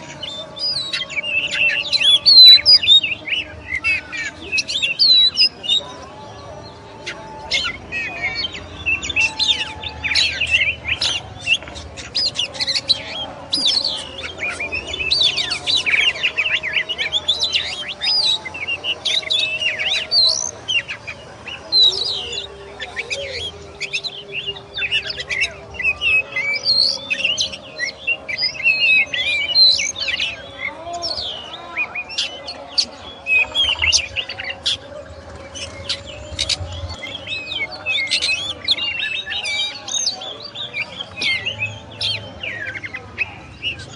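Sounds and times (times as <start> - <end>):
bird singing varied song: 0.0 - 43.9.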